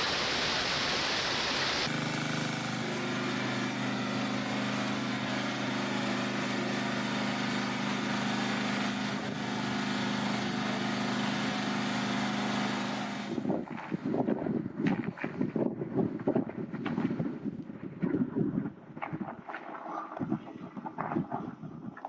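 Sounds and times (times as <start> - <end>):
engine running steadily: 0.0 - 17.7
gusty buffeting noise: 13.2 - 22.0.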